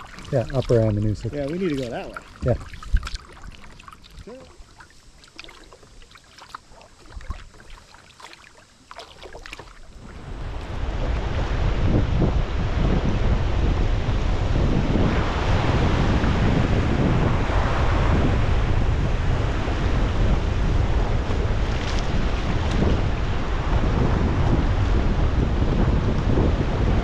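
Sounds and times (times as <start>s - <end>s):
wind buffeting microphone: 0.0s - 4.5s, 9.9s - 27.0s
water rushing: 0.0s - 12.3s.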